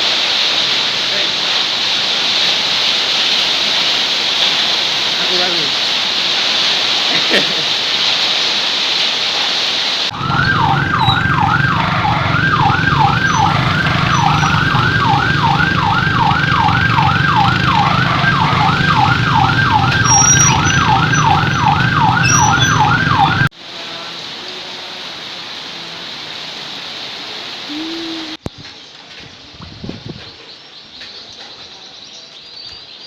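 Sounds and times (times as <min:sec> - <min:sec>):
heavy rain hissing: 0:00.0 - 0:28.5
siren sweeping down in pitch: 0:10.1 - 0:23.5.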